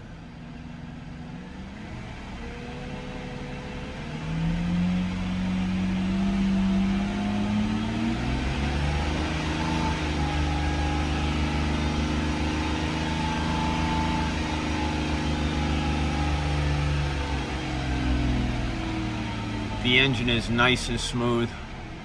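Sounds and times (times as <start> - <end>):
car engine running at raised revs: 0.0 - 22.0.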